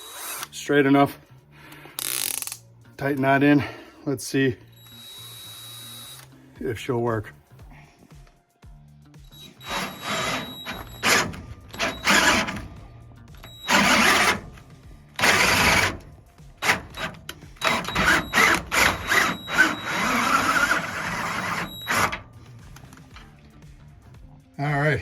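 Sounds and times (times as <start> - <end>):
power drill driving a tap: 15.2 - 16.0, 16.6 - 22.2.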